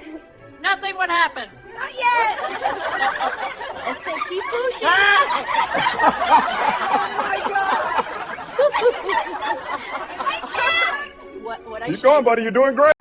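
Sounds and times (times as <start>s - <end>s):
people laughing: 1.9s - 11.4s.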